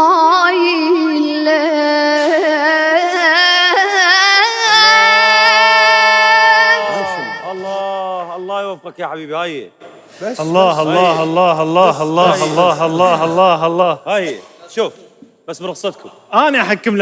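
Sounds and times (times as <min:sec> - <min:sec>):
boy chanting: 0:02.2 - 0:08.5, 0:10.4 - 0:13.6.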